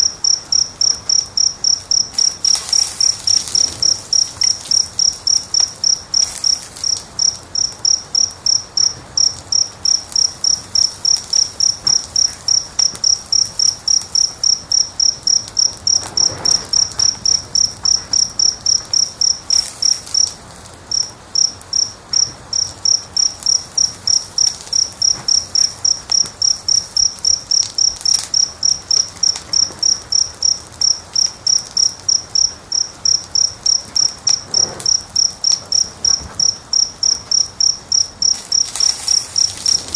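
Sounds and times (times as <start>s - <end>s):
cricket chirping: 0.0s - 39.9s
faint wood fire pops: 0.8s - 39.9s.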